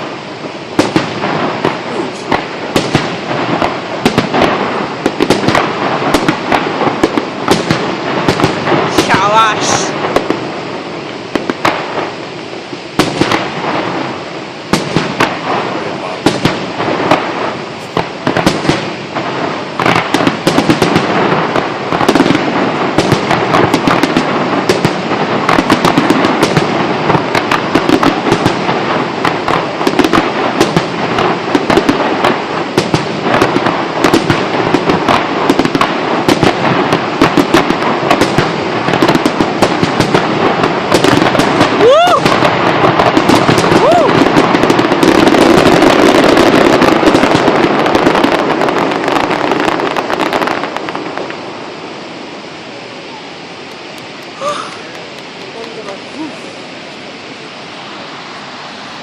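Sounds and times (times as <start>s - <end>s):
fireworks bangs and crackles: 0.0s - 59.0s
crowd voices: 52.6s - 57.6s.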